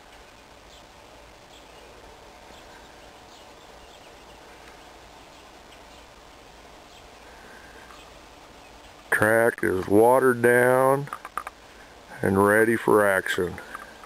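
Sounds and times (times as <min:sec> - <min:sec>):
bird chirping: 0:00.0 - 0:09.4
faint background noise: 0:00.0 - 0:14.0.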